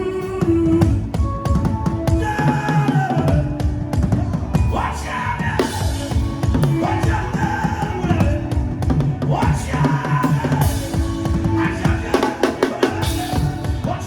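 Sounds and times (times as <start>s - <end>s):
sung melodic line: 0.0s - 14.0s
fast drum beat: 5.5s - 14.0s.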